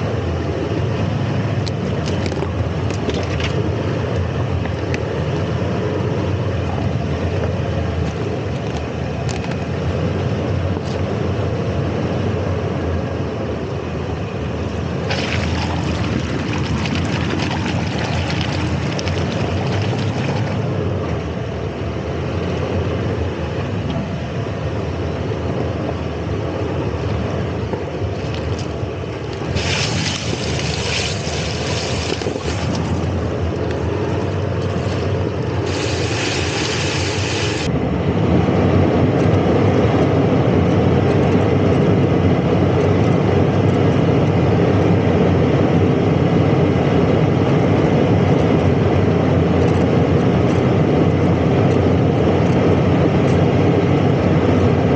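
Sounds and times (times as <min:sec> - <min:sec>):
vehicle engine and drivetrain: 0:00.0 - 0:54.9
hiss: 0:35.6 - 0:37.7.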